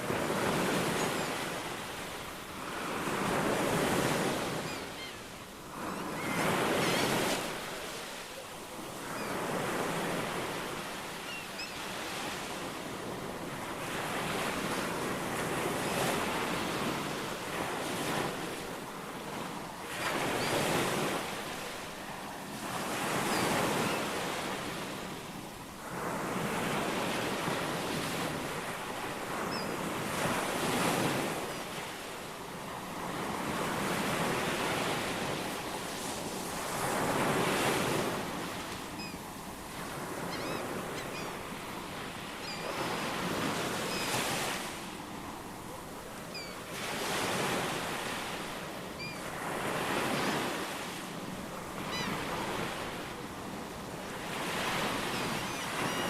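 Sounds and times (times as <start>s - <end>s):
ocean waves washing onto shore: 0.0s - 56.0s.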